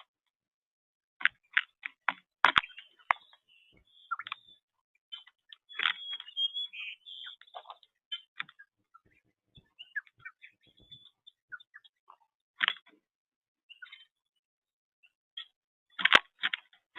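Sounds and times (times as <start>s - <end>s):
small birds chirping: 1.3s - 13.0s, 13.6s - 14.4s.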